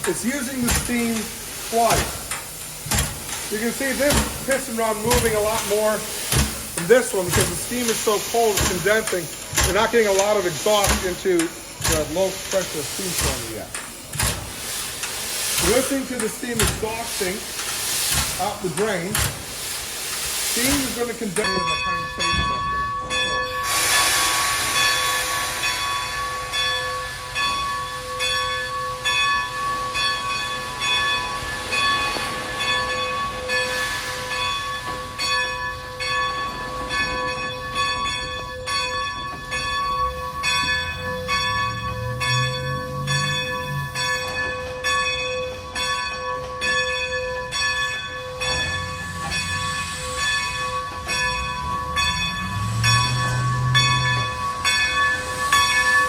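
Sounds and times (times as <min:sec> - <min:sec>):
air compressor clicking: 0:00.0 - 0:21.5
bell-like metallic ringing: 0:20.7 - 0:56.0.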